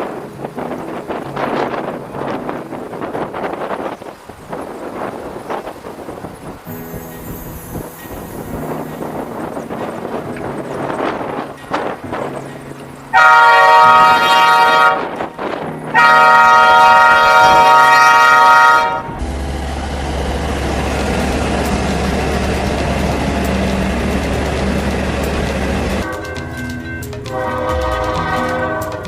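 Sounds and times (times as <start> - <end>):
train rumbling with low hum: 0.0 - 29.0
locomotive air horn: 13.1 - 19.2, 27.3 - 29.0.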